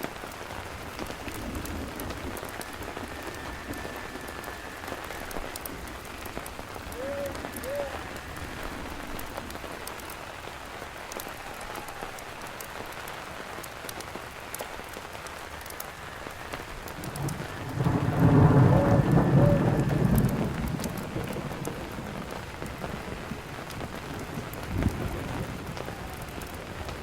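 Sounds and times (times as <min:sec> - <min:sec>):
steady rain: 0:00.0 - 0:27.0
thunder rumbling: 0:00.0 - 0:27.0.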